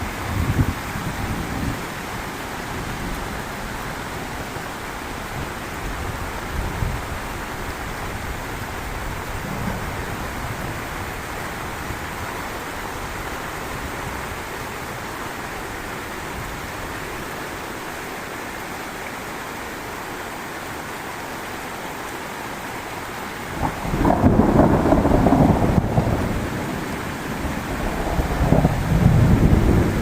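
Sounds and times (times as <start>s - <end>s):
heavy rain falling: 0.0s - 30.0s
low thunder rumble: 8.6s - 12.0s, 23.5s - 30.0s.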